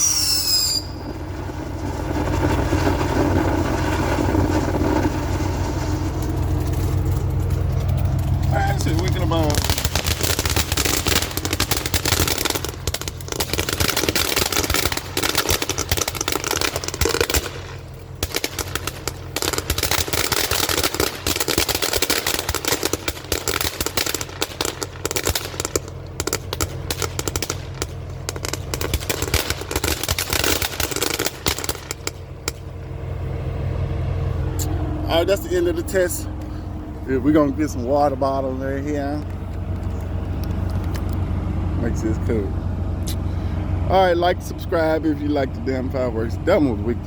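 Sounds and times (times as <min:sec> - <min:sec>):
firework crackling pops and bangs: 0:00.0 - 0:32.8.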